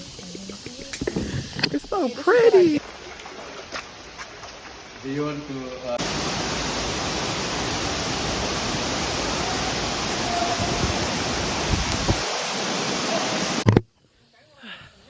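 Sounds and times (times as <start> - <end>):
waterfall rushing: 2.8 - 13.6.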